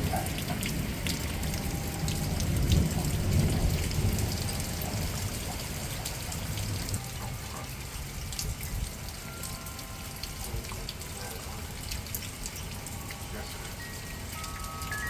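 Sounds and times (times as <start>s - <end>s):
low thunder rumble: 0.0s - 7.0s
steady rain: 0.0s - 15.0s
water drips: 0.0s - 15.0s.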